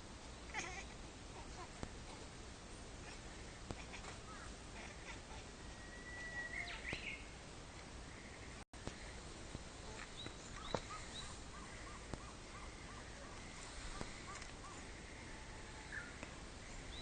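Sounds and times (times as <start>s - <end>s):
background hiss: 0.0s - 17.0s
birds calling: 3.8s - 7.3s, 9.8s - 17.0s
high bird chirps: 5.8s - 7.2s.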